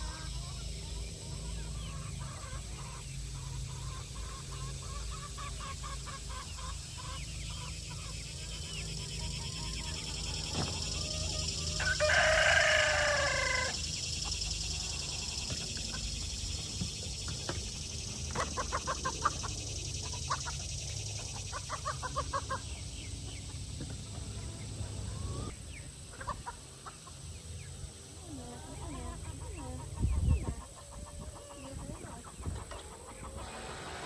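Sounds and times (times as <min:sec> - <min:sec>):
chickens clucking: 0:00.0 - 0:34.0
long loud chicken call: 0:10.8 - 0:14.0.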